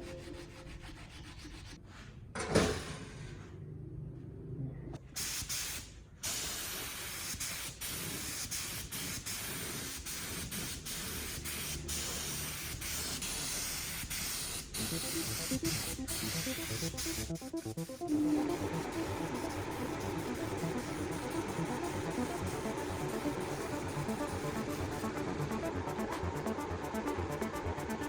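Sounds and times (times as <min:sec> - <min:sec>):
pressurised spray hissing: 0:05.2 - 0:26.6.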